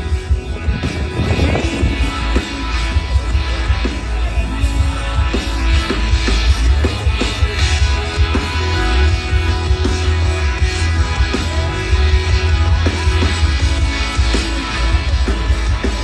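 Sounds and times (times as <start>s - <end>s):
rock music with guitar: 0.0s - 16.0s
steady bass line: 0.0s - 16.0s.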